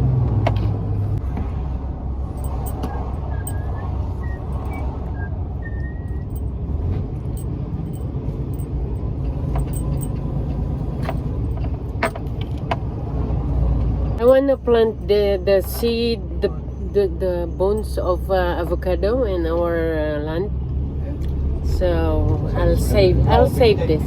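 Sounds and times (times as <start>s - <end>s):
truck engine drone: 0.0s - 24.0s
light clicks and rattles: 7.3s - 12.8s.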